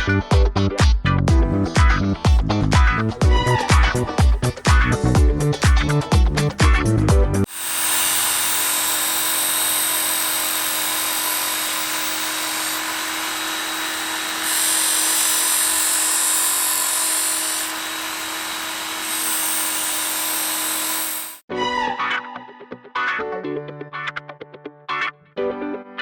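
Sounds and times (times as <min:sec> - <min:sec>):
electric power tool running: 0:03.0 - 0:06.7, 0:07.4 - 0:21.5.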